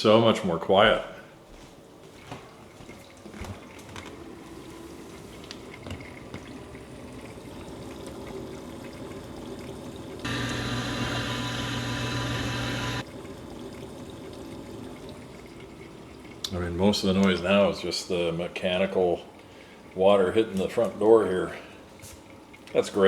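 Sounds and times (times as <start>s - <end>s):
dishwasher water spraying: 10.2s - 13.0s
loud buzz with low hum: 10.2s - 13.0s.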